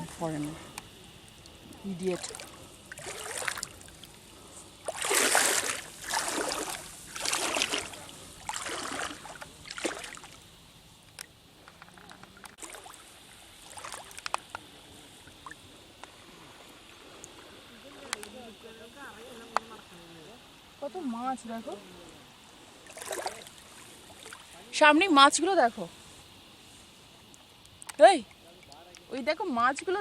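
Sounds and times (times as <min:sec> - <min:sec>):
water splashing swishes: 0:00.0 - 0:10.4, 0:12.0 - 0:18.5, 0:22.6 - 0:24.7
small splashes and clicks: 0:00.7 - 0:04.2, 0:04.8 - 0:10.4, 0:11.1 - 0:13.0, 0:13.6 - 0:16.2, 0:18.0 - 0:18.4, 0:22.9 - 0:23.6, 0:27.3 - 0:29.3.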